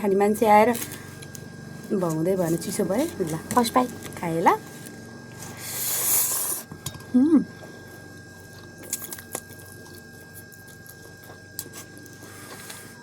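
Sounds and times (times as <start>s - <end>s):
faint high whine: 0.0s - 13.0s
person humming mmm: 7.0s - 7.7s
chewing noodles: 7.6s - 13.0s.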